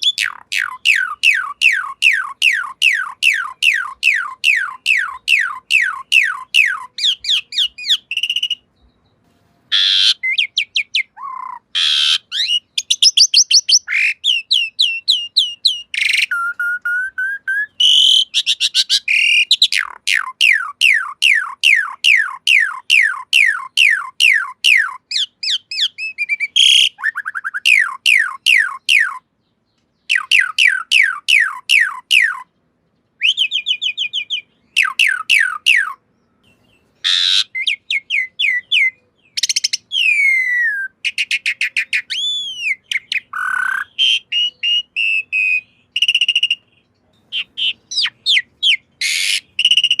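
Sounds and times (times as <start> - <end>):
bird song with sliding whistles: 0.0 - 8.7, 9.7 - 29.2, 30.0 - 32.5, 33.2 - 36.0, 36.6 - 50.0
harsh rasping bird notes: 0.0 - 12.8.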